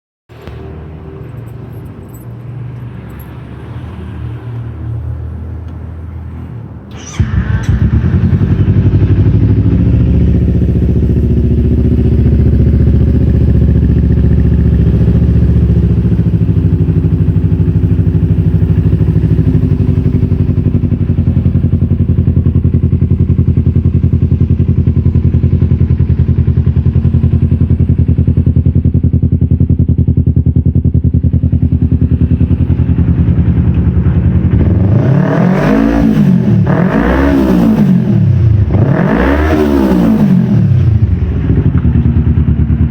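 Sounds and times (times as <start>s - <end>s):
engine revving: 6.9s - 28.8s, 31.1s - 42.9s
motorcycle engine idling: 7.1s - 35.1s, 40.8s - 42.9s.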